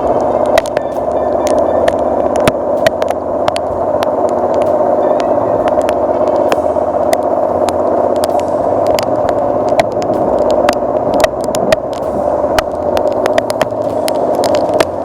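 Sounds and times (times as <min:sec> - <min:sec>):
boat motor running: 0:00.0 - 0:15.0
heavy rain striking boat: 0:00.0 - 0:15.0.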